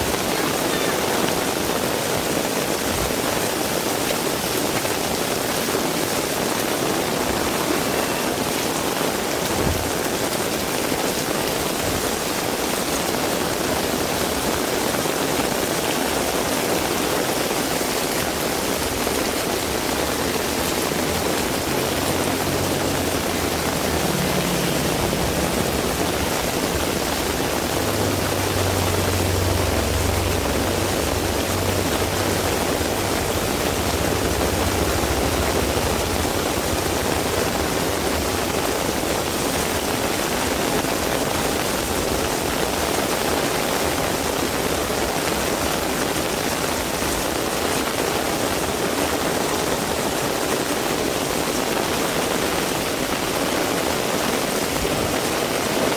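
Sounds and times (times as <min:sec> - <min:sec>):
heavy rain falling: 0:00.0 - 0:55.9
vehicle engine rumble: 0:17.8 - 0:47.1.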